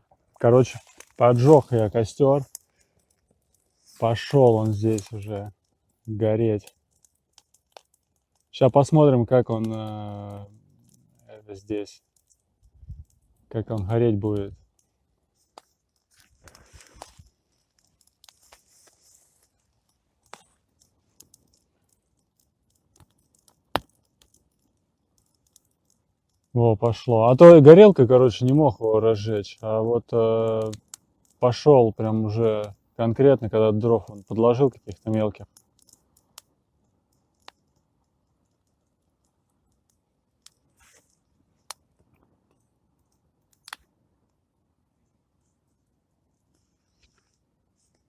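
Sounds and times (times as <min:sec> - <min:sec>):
campfire crackling: 0:00.0 - 0:48.0
fire hiss: 0:00.4 - 0:05.5, 0:15.4 - 0:19.8.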